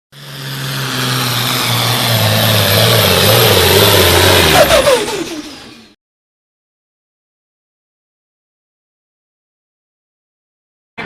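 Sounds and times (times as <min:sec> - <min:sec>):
tractor engine running loud: 0:00.1 - 0:06.0.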